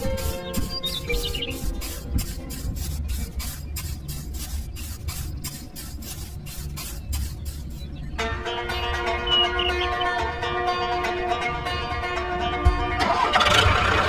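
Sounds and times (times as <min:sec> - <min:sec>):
plucked-string music: 0:00.0 - 0:04.2, 0:04.8 - 0:14.0
rhythmic hissing pulse: 0:00.0 - 0:10.2.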